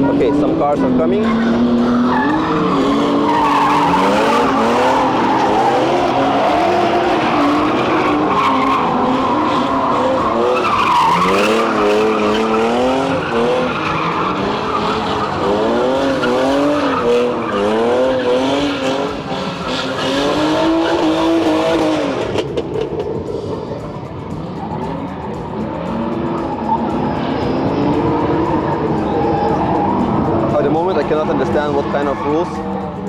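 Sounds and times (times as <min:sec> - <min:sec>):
tyres screeching: 0:00.0 - 0:22.9
car engines revving: 0:00.0 - 0:33.0.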